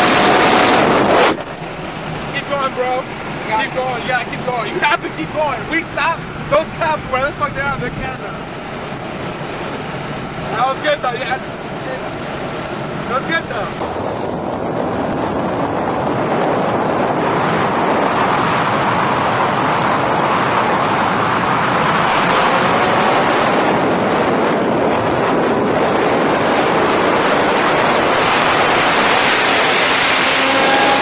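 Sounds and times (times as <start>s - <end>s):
wind and road noise: 0.0s - 31.0s.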